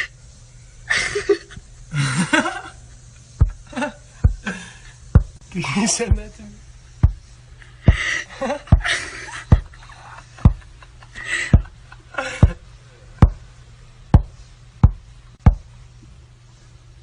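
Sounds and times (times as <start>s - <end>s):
sharp knocks: 4.2s - 4.5s, 5.1s - 5.4s, 7.0s - 7.3s, 7.9s - 8.1s, 8.7s - 9.8s, 10.4s - 10.7s, 13.2s - 13.4s, 14.2s - 15.7s.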